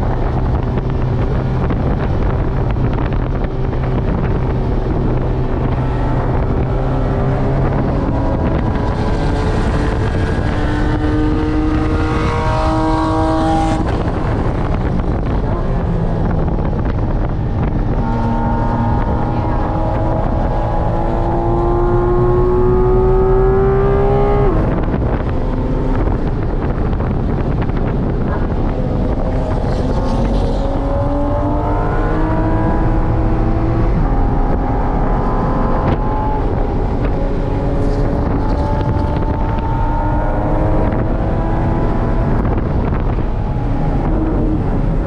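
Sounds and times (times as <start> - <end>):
car engine revving hard: 16.2 - 27.1.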